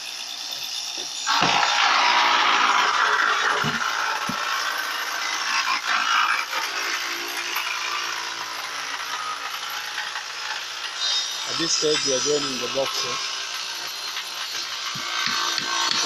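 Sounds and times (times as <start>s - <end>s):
woodworking machine rasping: 0.0s - 16.0s.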